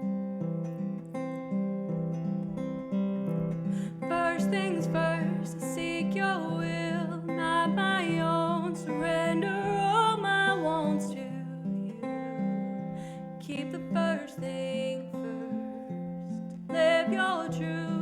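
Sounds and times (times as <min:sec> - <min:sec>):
acoustic guitar: 0:00.0 - 0:18.0
woman singing: 0:03.8 - 0:18.0.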